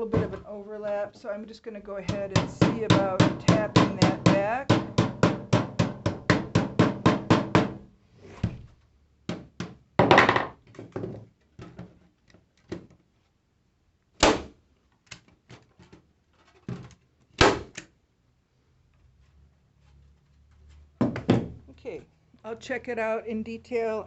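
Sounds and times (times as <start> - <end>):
hammer tapping metal lath: 2.1 - 7.8.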